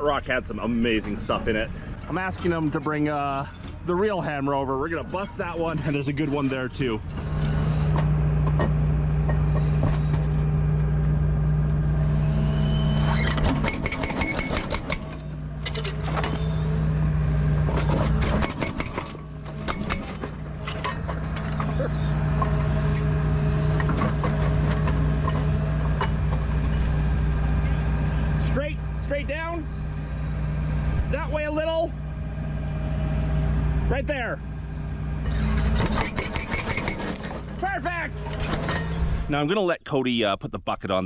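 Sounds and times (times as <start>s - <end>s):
excavator diesel engine running: 0.0s - 39.5s
clanks of metal and rock: 1.0s - 4.2s, 13.0s - 23.1s, 23.7s - 27.0s, 35.2s - 39.3s.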